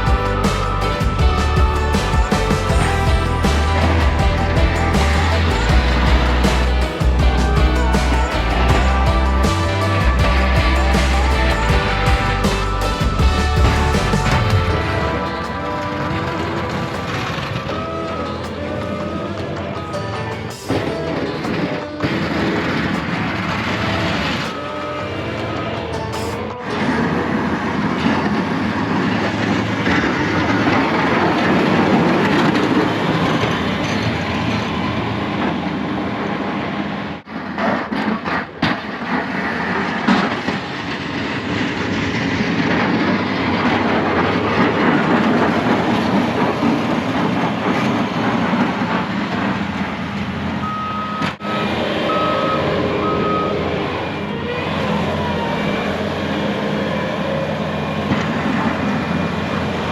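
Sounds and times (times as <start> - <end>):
snow plow truck running: 0.0 - 59.9
short beeps: 50.6 - 54.1.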